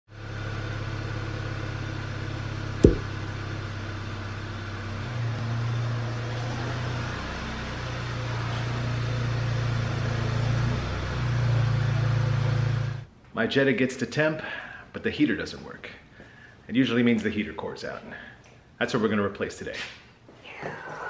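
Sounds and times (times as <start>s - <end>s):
sharp click: 2.8s - 3.1s.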